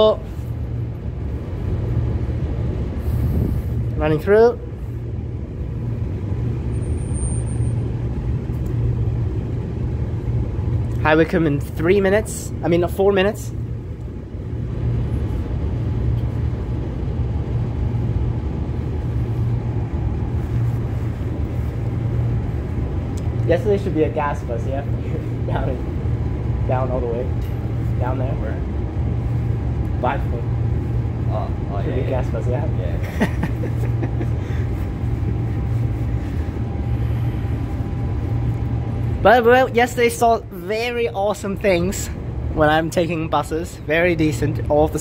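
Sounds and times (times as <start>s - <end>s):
faint steady whine: 0.0s - 45.0s
train interior rumble: 0.0s - 45.0s
deep hum: 13.5s - 42.8s.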